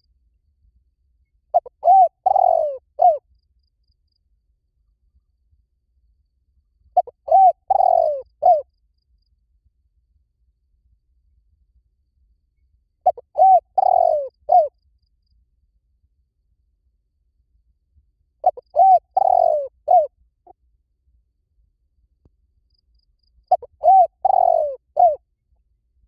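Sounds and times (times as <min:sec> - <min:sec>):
dove cooing: 0:01.5 - 0:03.2, 0:07.0 - 0:08.6, 0:13.0 - 0:14.7, 0:18.4 - 0:20.1, 0:23.5 - 0:25.2.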